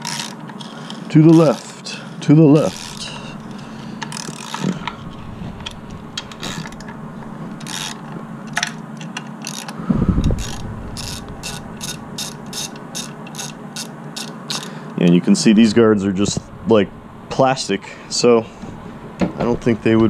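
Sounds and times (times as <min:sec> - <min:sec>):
ratchet pawl clicking: 0:00.0 - 0:05.0, 0:05.6 - 0:06.9, 0:07.6 - 0:14.8.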